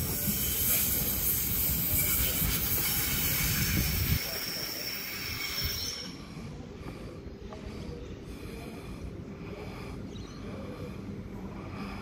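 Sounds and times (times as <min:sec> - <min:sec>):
high wheel squeal: 0:00.0 - 0:06.4
electric train rumble: 0:00.0 - 0:07.6.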